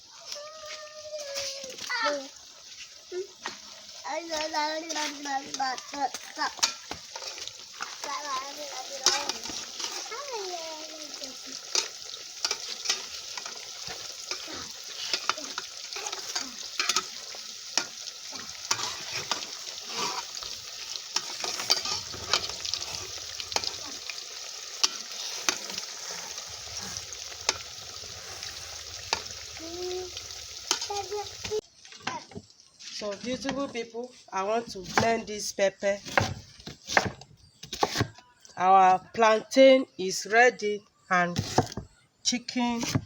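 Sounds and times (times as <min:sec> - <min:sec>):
food sizzling in hot oil: 0:00.0 - 0:33.7
utensil scraping a pot: 0:06.5 - 0:10.2, 0:11.5 - 0:29.4.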